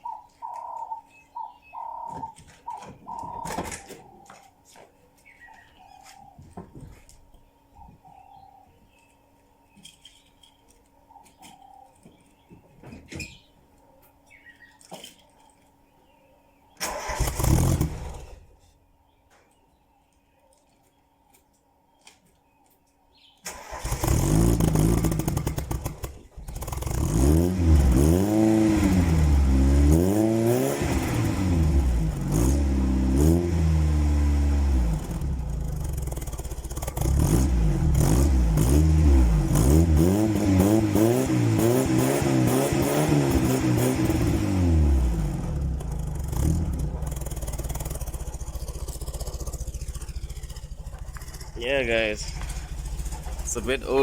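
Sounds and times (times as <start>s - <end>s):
car engine starting and revving: 16.8s - 18.5s, 23.5s - 54.0s.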